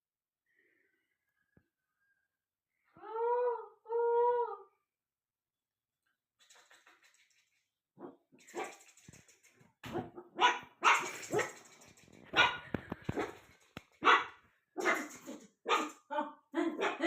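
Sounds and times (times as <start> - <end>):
dog barking: 9.9 - 11.6, 12.3 - 13.4, 14.0 - 16.0, 16.7 - 17.0.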